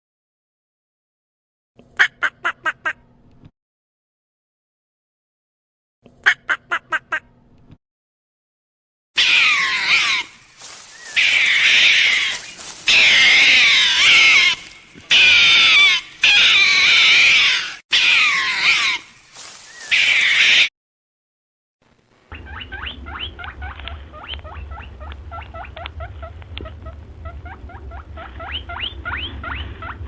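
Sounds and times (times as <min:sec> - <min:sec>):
animal wavering cries: 0:09.2 - 0:20.7, 0:22.3 - 0:30.0.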